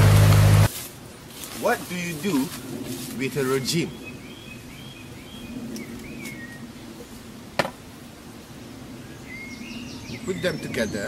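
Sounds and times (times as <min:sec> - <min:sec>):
bird chirping: 0:03.4 - 0:06.7, 0:09.0 - 0:11.0.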